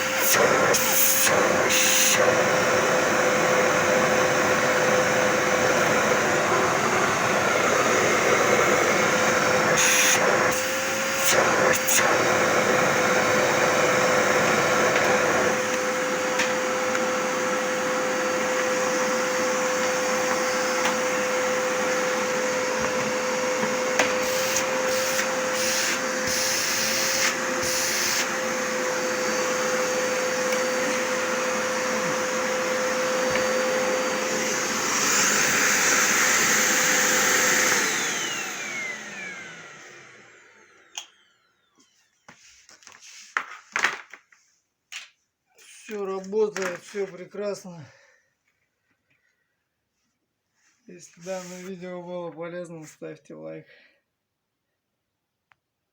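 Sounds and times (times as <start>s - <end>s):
vacuum cleaner motor whine: 0.0s - 42.3s.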